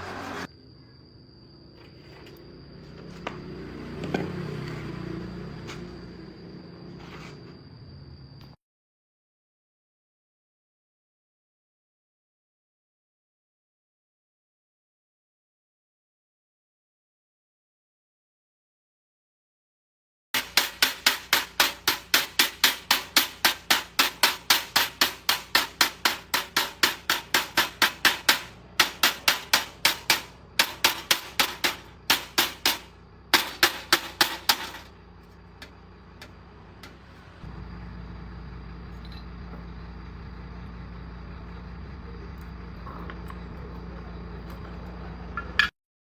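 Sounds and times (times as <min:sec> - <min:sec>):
rapid hammer blows: 0:20.4 - 0:37.1
steady low hum: 0:20.4 - 0:45.6.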